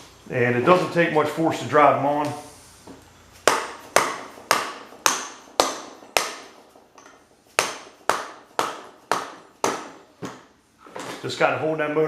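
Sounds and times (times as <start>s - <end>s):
hammer tapping metal: 3.4s - 10.4s.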